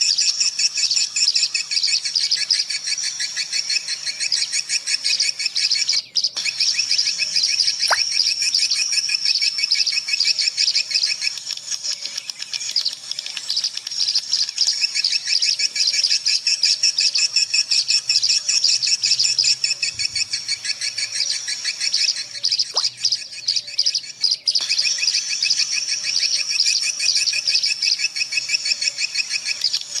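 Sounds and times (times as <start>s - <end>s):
swiftlets chirping: 7.8s - 8.2s.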